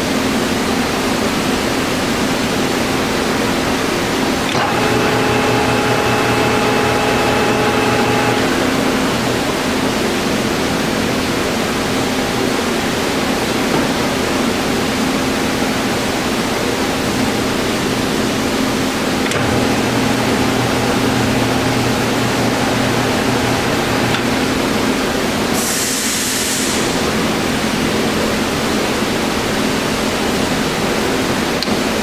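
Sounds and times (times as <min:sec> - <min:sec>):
lathe running: 0:04.4 - 0:10.8, 0:17.1 - 0:25.7
high gear whine: 0:04.5 - 0:10.3, 0:19.1 - 0:25.3.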